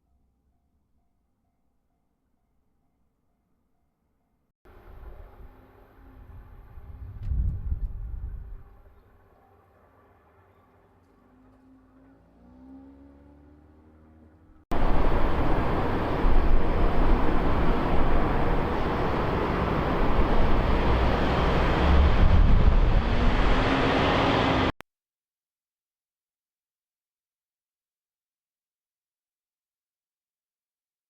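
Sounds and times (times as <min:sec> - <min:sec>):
vehicle rumble with hiss: 0:14.8 - 0:24.7.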